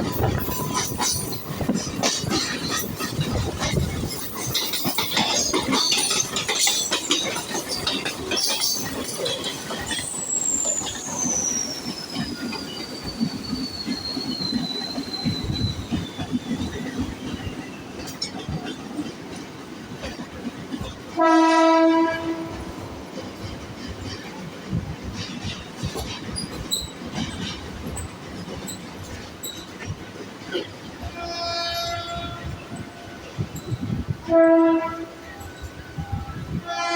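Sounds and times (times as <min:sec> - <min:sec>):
train wheels clattering on track: 0:00.0 - 0:36.9
train horn: 0:21.2 - 0:22.9, 0:31.1 - 0:33.2, 0:34.1 - 0:36.9.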